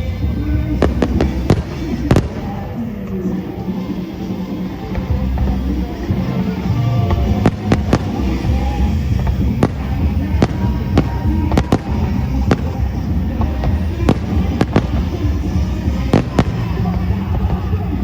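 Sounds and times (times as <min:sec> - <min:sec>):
fireworks bangs: 0:00.0 - 0:18.0
low rumble of bursting shells: 0:00.2 - 0:02.8, 0:07.1 - 0:18.0.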